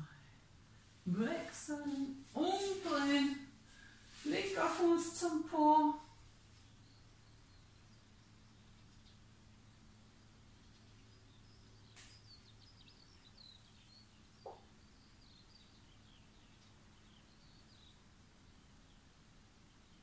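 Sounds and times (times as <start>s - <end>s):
faint bird chirping: 0.0s - 20.0s
low steady hum: 0.0s - 20.0s
soft rustle: 0.7s - 6.8s.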